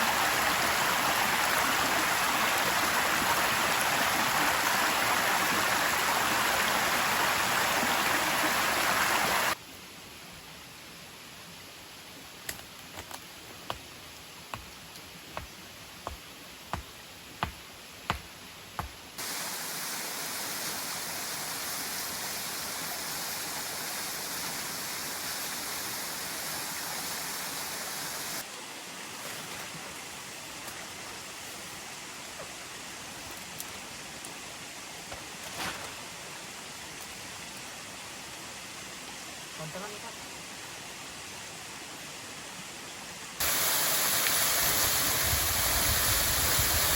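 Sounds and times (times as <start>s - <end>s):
waterfall rushing: 0.0s - 9.6s, 19.2s - 28.5s, 43.4s - 46.9s.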